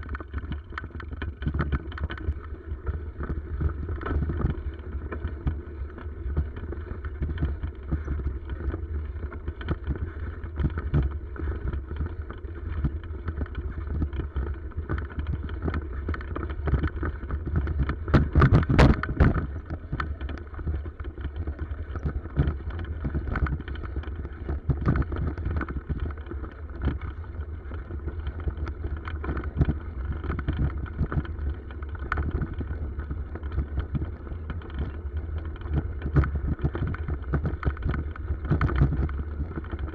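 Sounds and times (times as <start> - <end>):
bicycle rattles and knocks: 0.0 - 39.9
bicycle rumble on rough track: 0.0 - 39.9
wind on microphone: 17.5 - 20.9.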